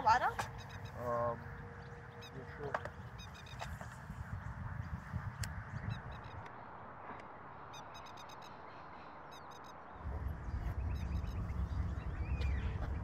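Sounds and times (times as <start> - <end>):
waterfowl calling: 0.3 - 3.9
wind rumble on microphone: 1.3 - 7.5, 9.9 - 13.0.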